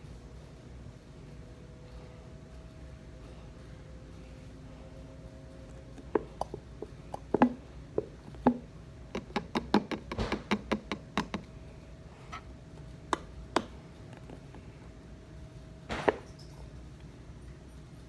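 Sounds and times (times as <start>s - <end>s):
glue bottle knocking: 7.2s - 11.5s.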